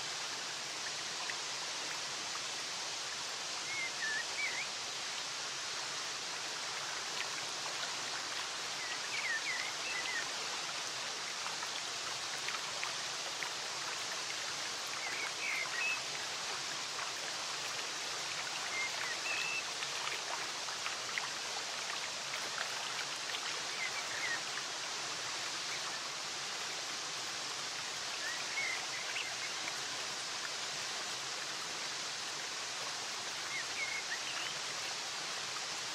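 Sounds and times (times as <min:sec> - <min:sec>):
stream water rushing: 0:00.0 - 0:35.9
faint bird chirps: 0:03.6 - 0:04.8.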